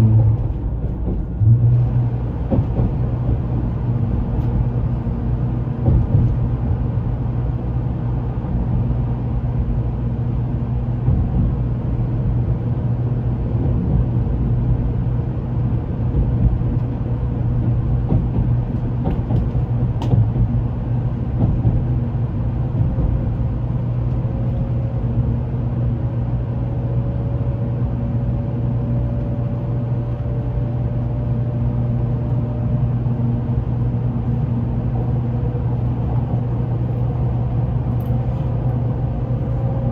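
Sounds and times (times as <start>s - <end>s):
train rumble from inside: 0.0s - 39.9s.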